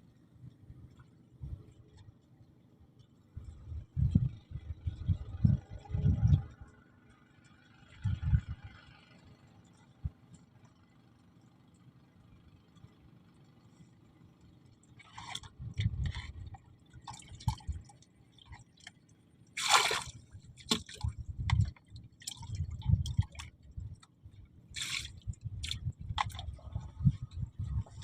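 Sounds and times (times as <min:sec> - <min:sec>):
water splashing and sloshing: 0:13.7 - 0:28.0.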